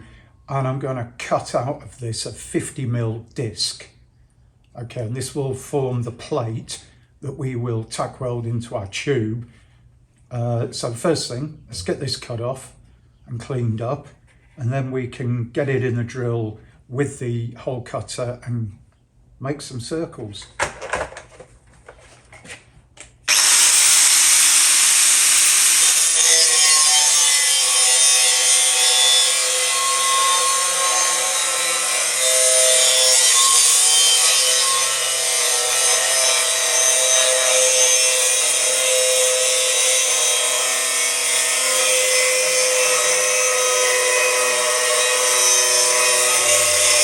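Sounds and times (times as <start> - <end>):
angle grinder cutting steel: 23.3 - 47.0.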